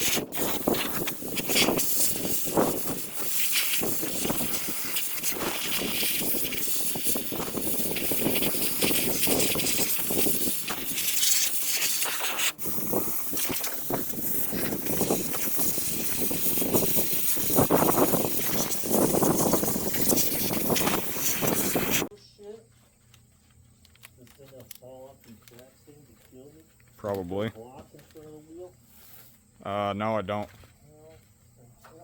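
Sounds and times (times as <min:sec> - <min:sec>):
spraying hiss: 0:00.0 - 0:22.1.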